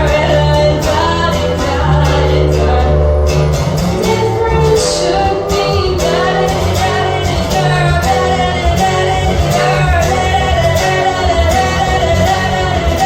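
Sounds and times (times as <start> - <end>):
band playing bass and beat: 0.0 - 13.0
person singing pop song: 0.0 - 13.0.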